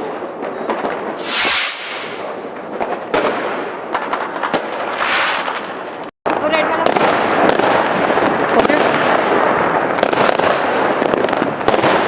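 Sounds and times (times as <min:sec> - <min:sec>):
fireworks bangs: 0:00.7 - 0:12.0
firecrackers crackling: 0:01.1 - 0:12.0
loud firework hiss: 0:01.2 - 0:02.6.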